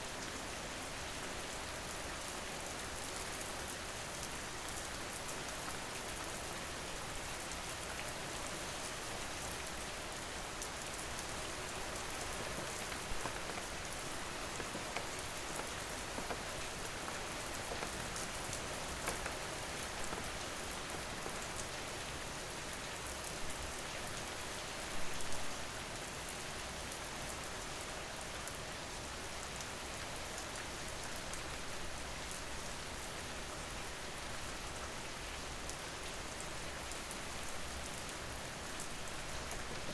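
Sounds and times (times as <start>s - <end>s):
steady rain falling: 0.0s - 39.9s
raindrop ticks: 11.0s - 22.2s.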